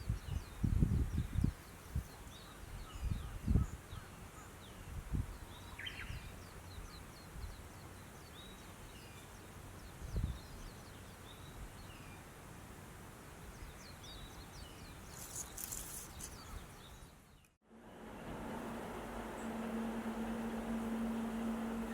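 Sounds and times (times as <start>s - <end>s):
small birds chirping: 13.5s - 17.6s
brief rustle: 15.1s - 16.5s.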